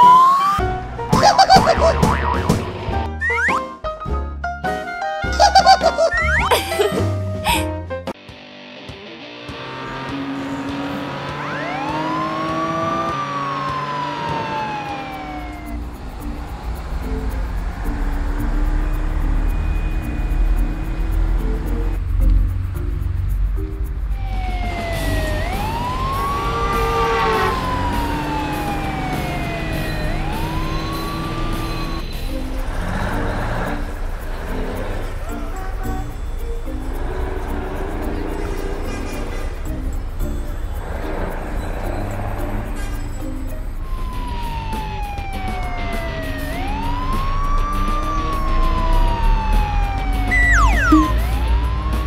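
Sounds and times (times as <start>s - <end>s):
ambulance siren wailing: 0.0s - 3.5s, 5.4s - 6.6s, 11.4s - 15.9s, 24.2s - 32.0s, 43.8s - 52.0s
background music: 0.0s - 52.0s.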